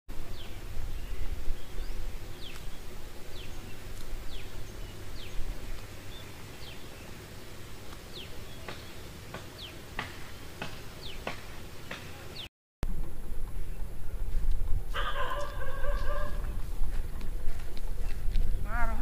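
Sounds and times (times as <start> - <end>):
low rumble: 12.8 - 19.0.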